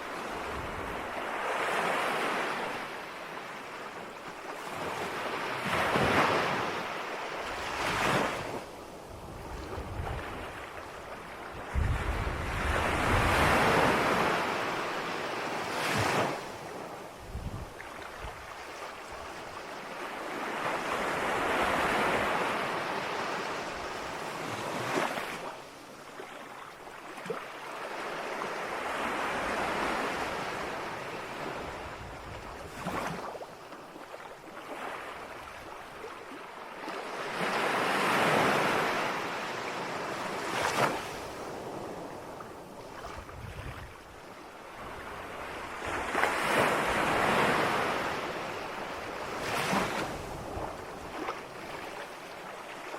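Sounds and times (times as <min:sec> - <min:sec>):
ocean waves breaking: 0:17.8 - 0:52.9.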